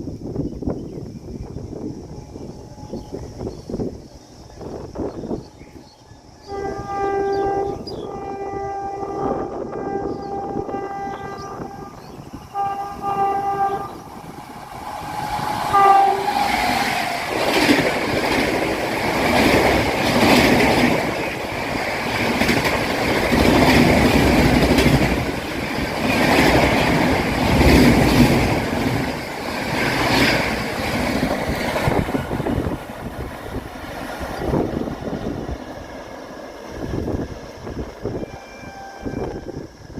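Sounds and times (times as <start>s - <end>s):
train horn blasts: 6.4s - 14.2s, 15.7s - 17.0s, 38.0s - 39.9s
train wheels clattering over rails: 13.8s - 35.9s.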